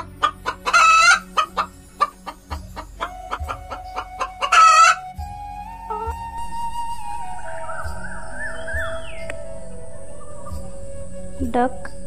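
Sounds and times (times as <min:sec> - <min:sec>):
hen clucking: 0:00.0 - 0:05.1, 0:05.9 - 0:06.2
hen squawking: 0:00.0 - 0:05.1.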